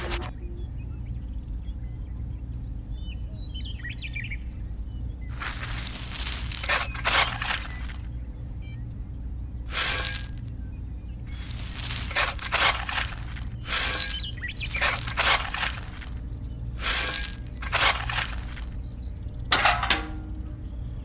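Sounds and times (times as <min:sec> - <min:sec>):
low hum: 0:00.0 - 0:21.0
stones clinking in tin bucket: 0:05.3 - 0:08.0, 0:09.7 - 0:10.4, 0:11.4 - 0:16.2, 0:16.8 - 0:18.7
trowel digging into gravel: 0:05.3 - 0:08.0, 0:09.7 - 0:10.4, 0:11.3 - 0:16.2, 0:16.8 - 0:18.7.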